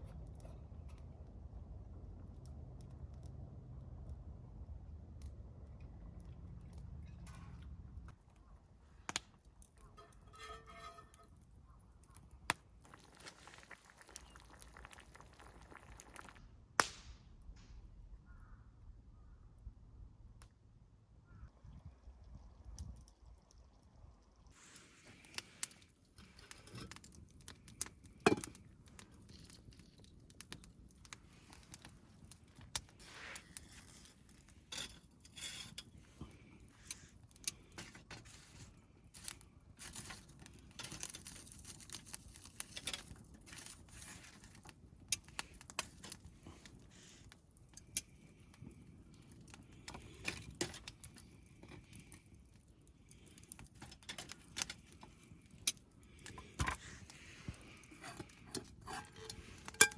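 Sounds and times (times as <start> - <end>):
objects clinking and rustling: 57.7 - 59.9.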